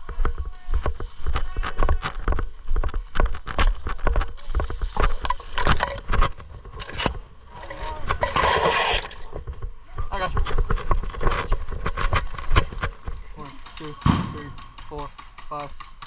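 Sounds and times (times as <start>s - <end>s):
footsteps: 0.0s - 9.8s
gear rustling: 3.2s - 9.4s.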